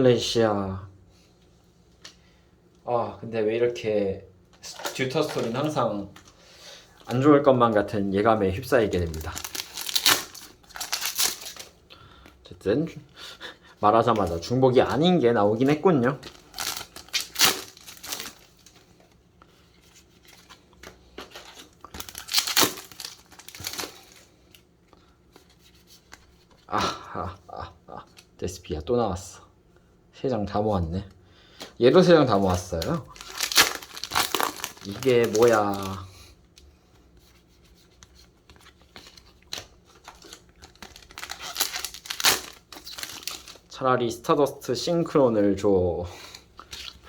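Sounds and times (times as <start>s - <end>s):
cards being handled: 4.6s - 6.4s, 8.6s - 12.4s, 14.0s - 24.6s, 32.3s - 36.0s, 37.0s - 43.7s
foil wrappers crinkling and tearing: 8.6s - 11.8s, 14.0s - 19.1s, 19.8s - 24.6s, 32.3s - 36.1s, 38.6s - 43.8s.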